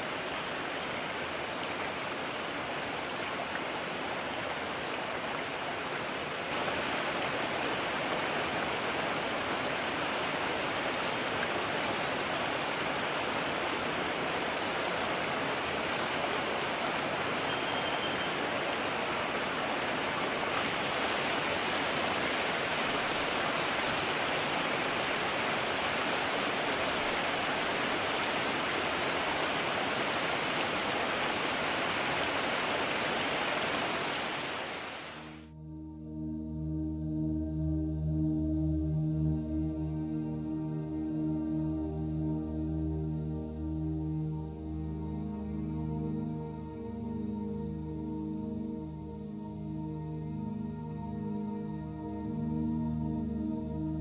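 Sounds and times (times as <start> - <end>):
mountain stream rushing: 0.0 - 35.5.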